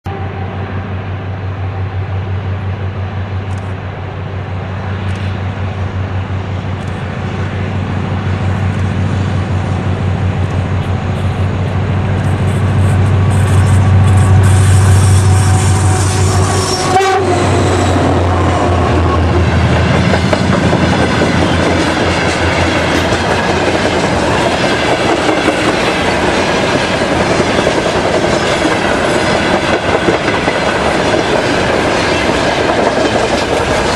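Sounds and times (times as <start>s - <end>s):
diesel locomotive engine drone: 0.0s - 33.9s
train wheels clacking on rails: 8.4s - 33.9s
train horn blast: 12.5s - 19.7s.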